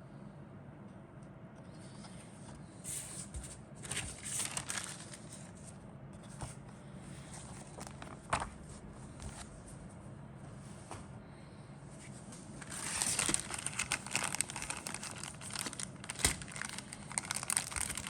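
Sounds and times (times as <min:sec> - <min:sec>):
steady low hum: 0:00.0 - 0:18.0
plastic packaging crinkling: 0:03.8 - 0:05.6, 0:12.6 - 0:18.0.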